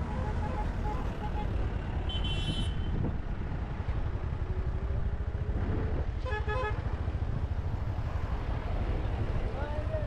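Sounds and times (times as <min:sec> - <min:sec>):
road rumble while riding: 0:00.0 - 0:10.0
vehicle horn toot: 0:02.1 - 0:03.0.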